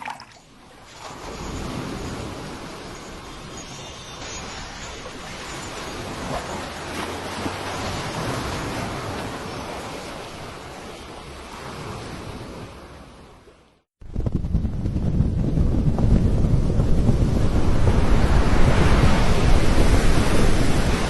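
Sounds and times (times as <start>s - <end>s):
waves surging: 0.0s - 13.4s.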